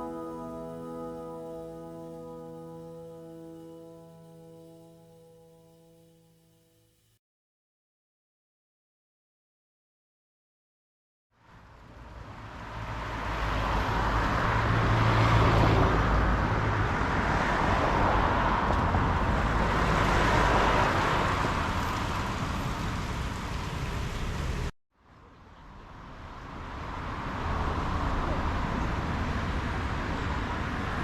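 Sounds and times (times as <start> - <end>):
passing cars road noise: 0.0 - 6.4, 11.4 - 24.7, 25.5 - 31.0.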